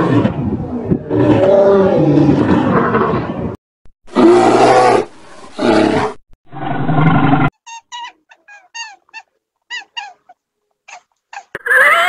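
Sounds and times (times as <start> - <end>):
rabbit squeaking: 7.5 - 12.0.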